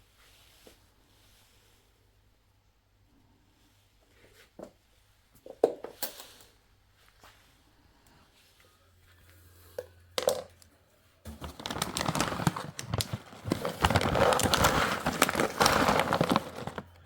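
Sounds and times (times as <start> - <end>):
crinkling and rattling handling: 11.3 - 17.0.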